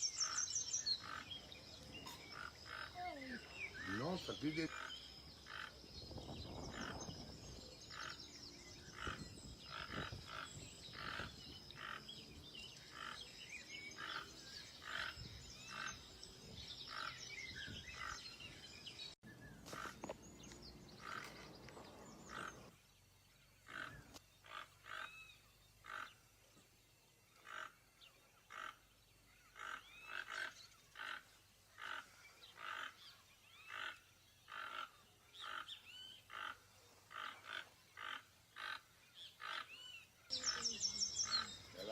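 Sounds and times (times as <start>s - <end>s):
toucan croaking: 23.6s - 25.2s, 33.7s - 39.8s.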